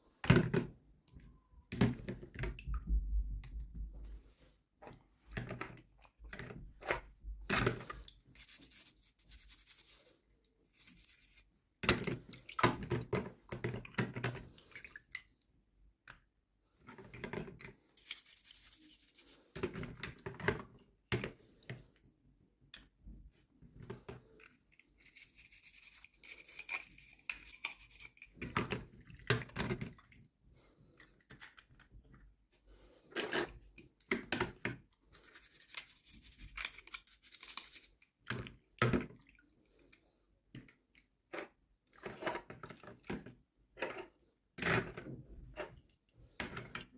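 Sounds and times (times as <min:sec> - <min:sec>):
plastic toys handled: 0:05.4 - 0:11.5, 0:16.8 - 0:20.1, 0:23.8 - 0:28.9, 0:33.1 - 0:38.0.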